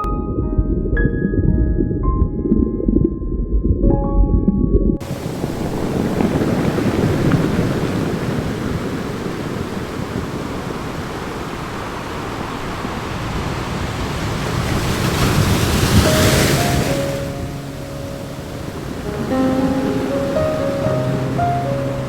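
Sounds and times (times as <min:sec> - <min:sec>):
surf rushing: 0:05.0 - 0:22.0.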